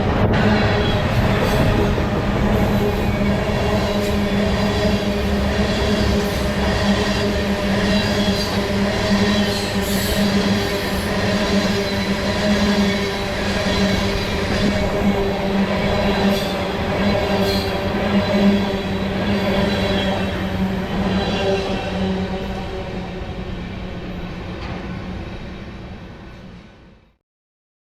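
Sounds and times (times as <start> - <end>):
rail noise: 0.0 - 27.2
train rolling past: 0.0 - 27.2.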